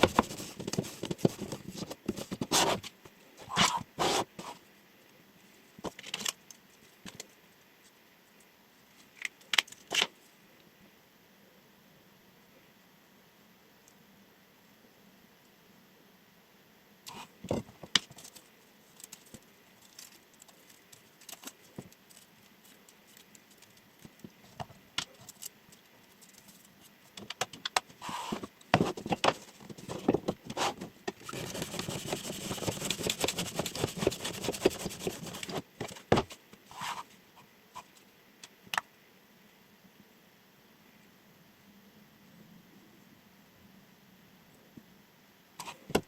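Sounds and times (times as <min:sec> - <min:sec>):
rapid knife cutting strokes: 0:30.6 - 0:35.6.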